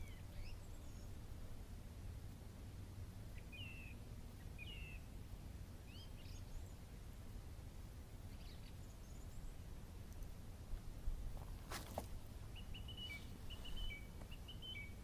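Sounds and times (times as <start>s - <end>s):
bird chirping: 0.0s - 1.3s, 3.3s - 5.1s, 5.9s - 7.1s, 8.2s - 9.7s, 12.4s - 15.0s
faint low background noise: 0.0s - 15.0s.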